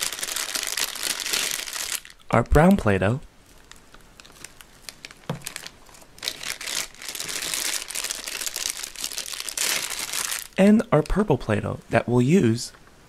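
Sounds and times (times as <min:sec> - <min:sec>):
plastic bag crinkling: 0:00.0 - 0:02.3, 0:03.4 - 0:11.2.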